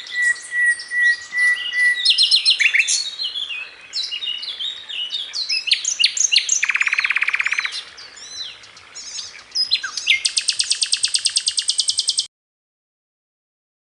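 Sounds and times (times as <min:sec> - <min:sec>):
bird trilling: 0:00.0 - 0:03.1, 0:05.5 - 0:07.8, 0:09.0 - 0:12.3
songbirds chirping: 0:00.0 - 0:12.3.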